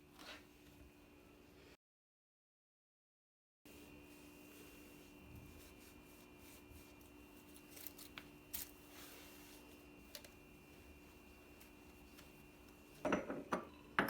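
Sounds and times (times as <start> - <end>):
faint steady hum: 3.7 - 14.0.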